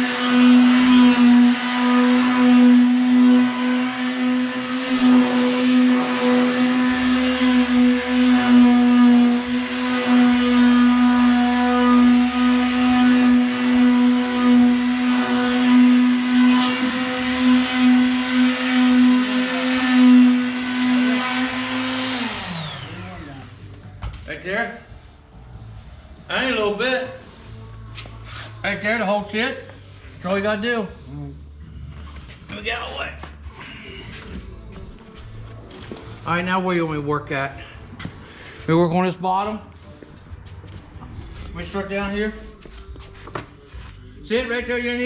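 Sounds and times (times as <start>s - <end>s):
small electric motor whining: 0.0s - 23.7s.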